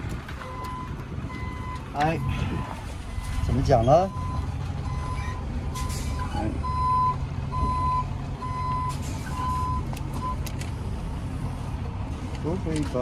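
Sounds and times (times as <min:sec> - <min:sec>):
truck engine rumble: 0:00.0 - 0:13.0
vehicle backup alarm beeping: 0:00.4 - 0:10.5.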